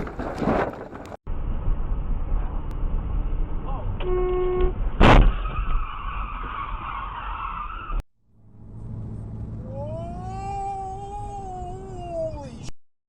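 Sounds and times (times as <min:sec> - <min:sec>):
car road noise: 0:01.0 - 0:12.7
tyres squealing in a skid: 0:05.3 - 0:08.0.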